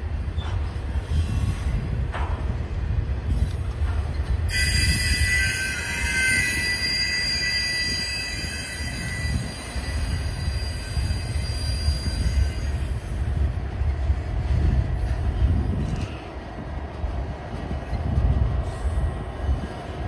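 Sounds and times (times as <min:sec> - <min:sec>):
freight train rumbling on rails: 0:00.0 - 0:20.0
high-pitched brake squeal: 0:04.5 - 0:13.0.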